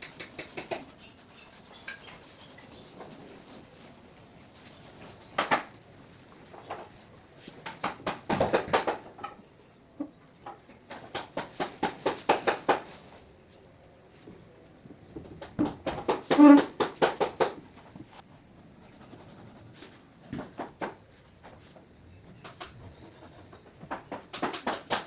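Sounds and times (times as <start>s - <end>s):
quick sharp taps and clicks: 0.0s - 1.0s.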